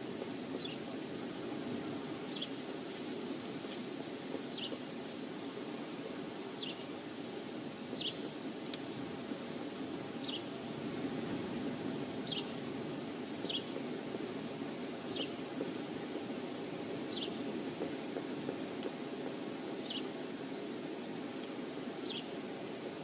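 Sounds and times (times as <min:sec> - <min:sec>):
wind over microphone: 0:00.0 - 0:23.0
small bird chirping: 0:00.2 - 0:00.8, 0:02.3 - 0:05.2, 0:08.0 - 0:08.2.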